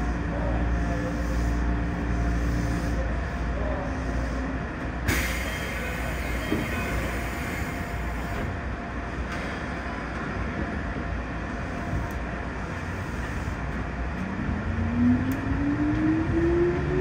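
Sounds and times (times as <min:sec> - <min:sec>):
train equipment humming: 0:00.0 - 0:17.0
air hissing: 0:04.1 - 0:08.4.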